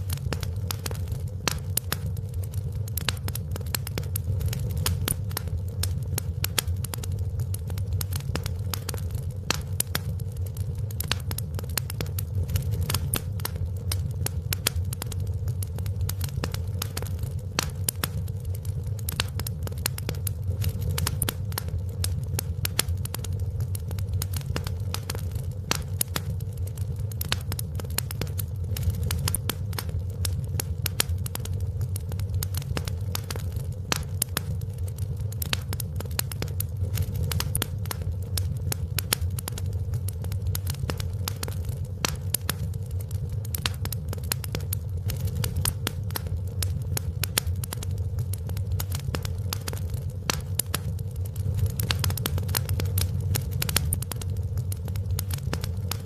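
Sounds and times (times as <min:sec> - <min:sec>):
low fire rumble: 0:00.0 - 0:56.0
wood fire crackling: 0:00.0 - 0:56.0.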